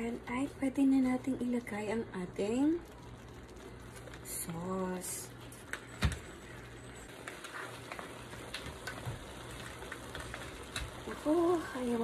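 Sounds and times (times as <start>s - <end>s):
light crackles: 0.0s - 12.0s.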